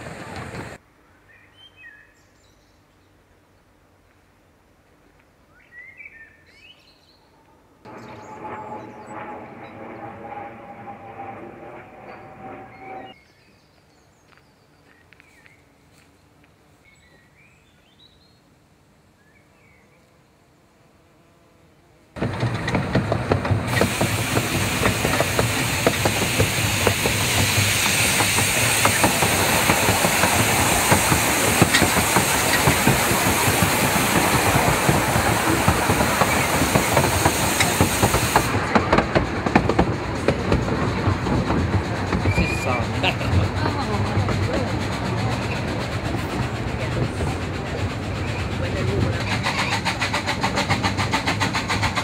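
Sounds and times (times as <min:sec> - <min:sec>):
steam train rumbling: 0:00.0 - 0:00.8, 0:07.9 - 0:13.2, 0:22.2 - 0:52.0
birds chirping: 0:07.9 - 0:11.0, 0:23.7 - 0:38.0
carriage wheels clattering on track: 0:22.2 - 0:52.0
loud hiss: 0:23.5 - 0:38.8.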